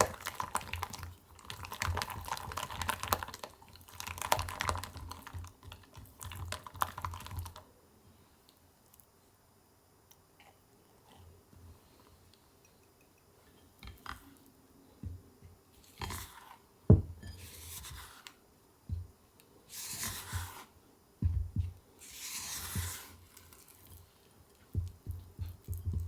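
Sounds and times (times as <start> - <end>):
soft knocks: 16.9 - 17.2.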